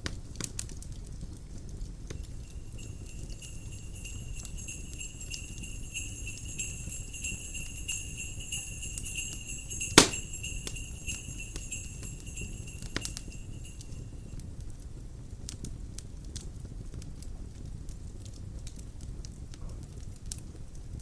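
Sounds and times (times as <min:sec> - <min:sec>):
wood fire crackling: 0:01.9 - 0:14.3
sleigh bells shaking: 0:02.2 - 0:14.4
fire pop: 0:09.8 - 0:10.8.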